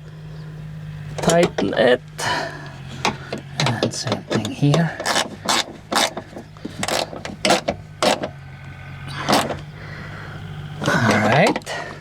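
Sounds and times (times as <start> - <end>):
steady low hum: 0.0 - 12.0
hand tool clicks and knocks: 3.0 - 8.3.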